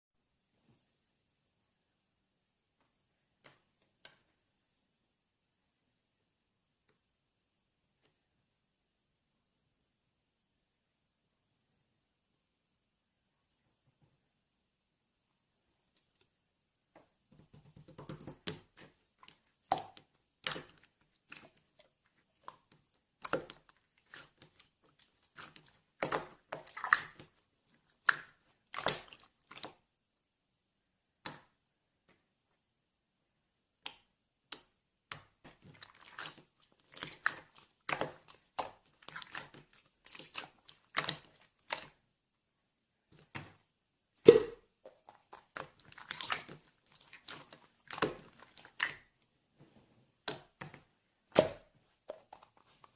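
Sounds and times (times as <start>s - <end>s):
slime squelching and popping: 17.4s - 29.9s, 33.8s - 42.0s, 43.1s - 49.2s, 50.2s - 52.9s.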